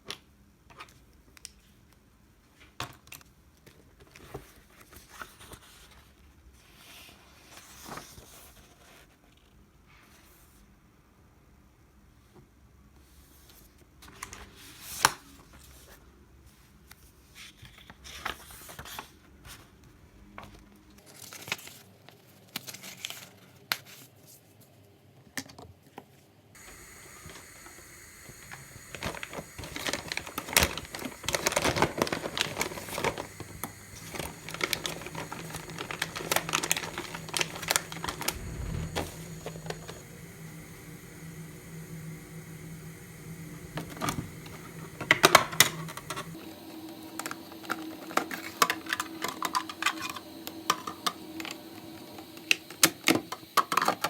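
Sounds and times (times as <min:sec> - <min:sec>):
crinkling and rustling: 0:26.6 - 0:54.0.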